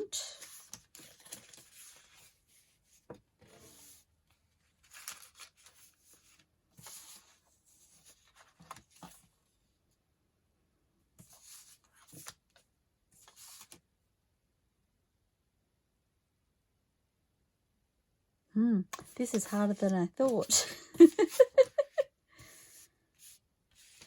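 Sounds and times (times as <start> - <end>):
paper rustling: 0.4 - 9.3, 11.2 - 12.6, 13.2 - 13.8, 20.4 - 22.0, 23.2 - 24.0.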